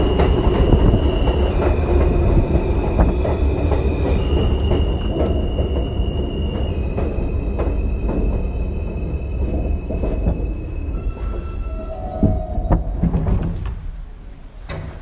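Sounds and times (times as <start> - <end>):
wheels clicking over rails: 0.0 - 14.0
subway train rumbling: 0.0 - 15.0.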